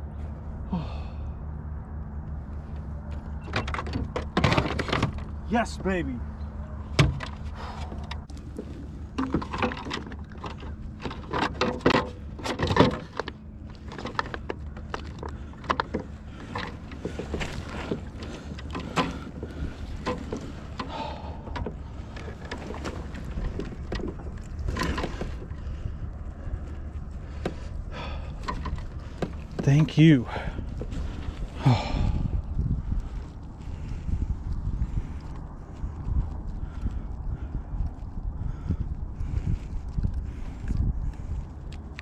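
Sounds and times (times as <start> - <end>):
steady low hum: 0.0 - 42.0
gear knocking and clattering: 6.9 - 32.2.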